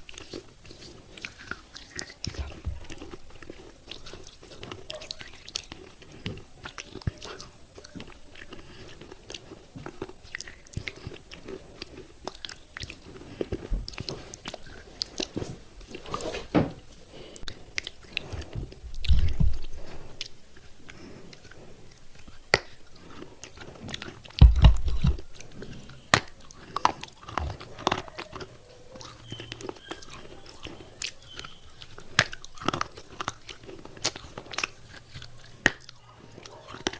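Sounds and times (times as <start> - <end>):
crunching and chewing clay pieces: 0.0 - 36.9
low thuds: 24.4 - 25.2.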